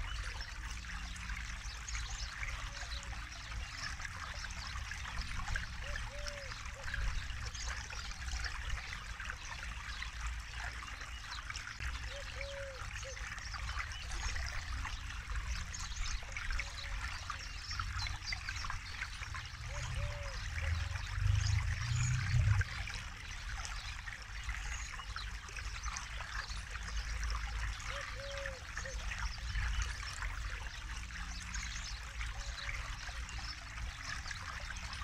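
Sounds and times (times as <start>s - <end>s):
low rumble: 20.6s - 23.0s.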